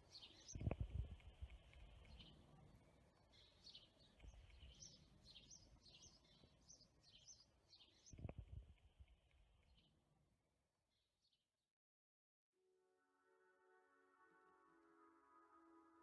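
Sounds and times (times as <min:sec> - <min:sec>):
small bird chirping: 0:03.3 - 0:08.4.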